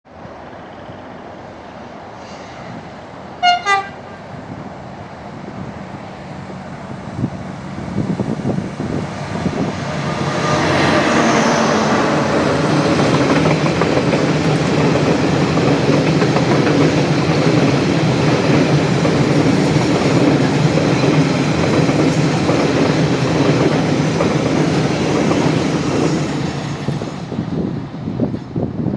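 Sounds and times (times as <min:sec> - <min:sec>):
freight train rumble: 0:00.1 - 0:28.9
locomotive horn blasts: 0:03.4 - 0:04.1, 0:09.9 - 0:12.3
train wheel clatter: 0:08.0 - 0:28.6.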